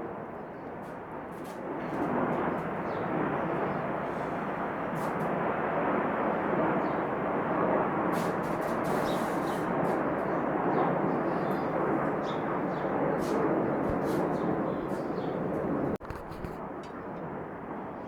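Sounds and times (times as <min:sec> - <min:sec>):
airplane engine rumble: 0:00.8 - 0:17.9.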